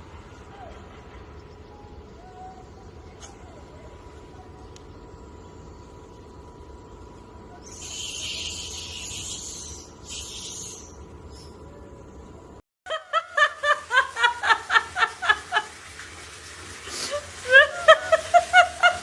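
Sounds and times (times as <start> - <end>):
high hissing noise: 7.6 - 11.5
person laughing hard: 12.9 - 15.8, 17.0 - 19.0.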